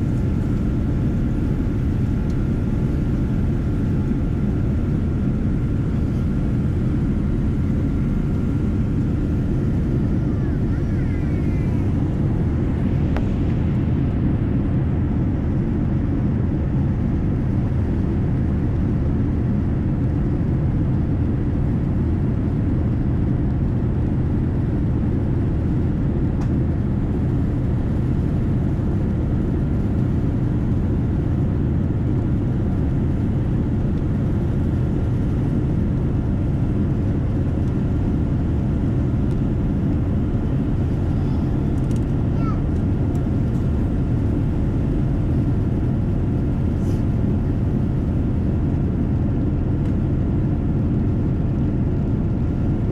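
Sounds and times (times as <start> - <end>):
aircraft cabin engine rumble: 0.0 - 52.9.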